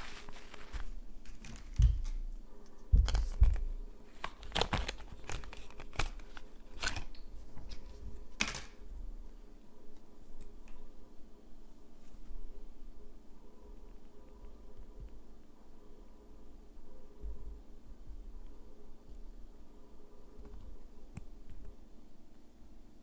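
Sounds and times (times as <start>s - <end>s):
rustling on tabletop: 0.0s - 8.5s.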